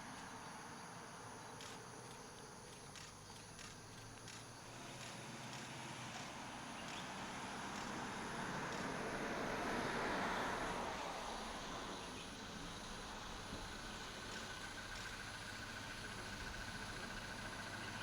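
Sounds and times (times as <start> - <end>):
vehicle passing by: 4.7 - 12.2.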